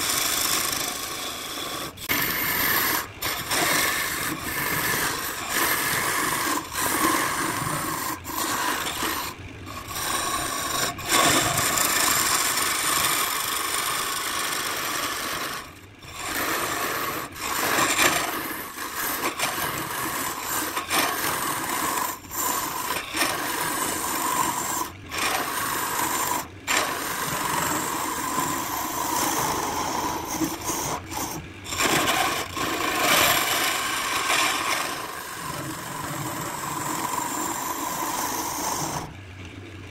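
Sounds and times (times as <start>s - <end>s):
lathe tool scraping hiss: 0.0s - 39.1s.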